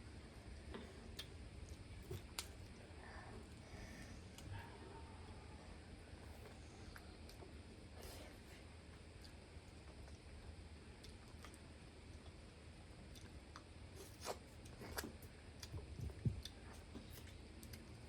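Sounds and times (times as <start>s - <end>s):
person chewing: 1.0s - 2.8s, 13.1s - 18.0s.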